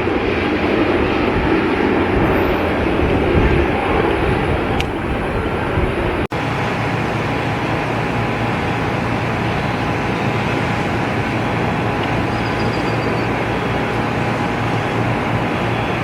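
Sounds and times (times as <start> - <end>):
jet engines rumbling: 0.0 - 16.0
faint high whine: 6.1 - 16.0.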